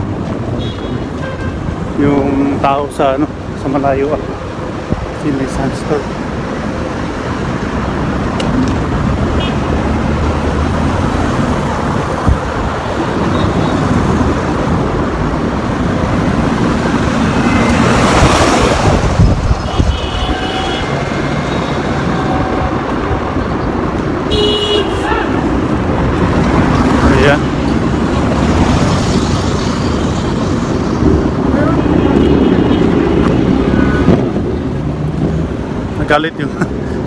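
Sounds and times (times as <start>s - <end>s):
road traffic noise: 0.0s - 37.0s
wind buffeting microphone: 0.0s - 37.0s
vehicle passing close: 7.1s - 36.1s.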